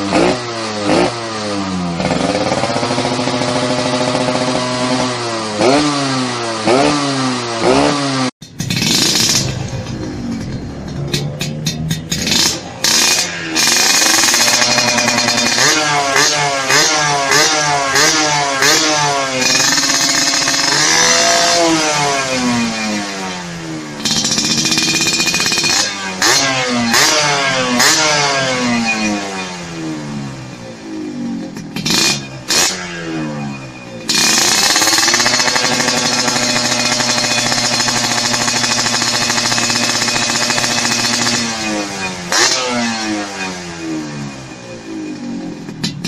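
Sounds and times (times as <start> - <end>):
two-stroke engine revving: 0.0 - 46.0
exhaust cracks: 8.4 - 18.2, 23.8 - 43.5.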